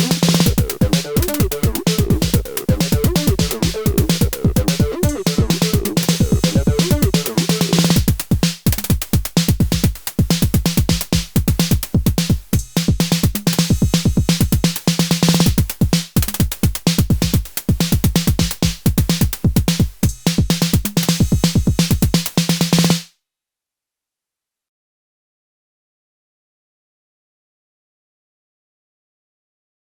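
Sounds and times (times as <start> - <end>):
drum machine hits: 0.0 - 23.0.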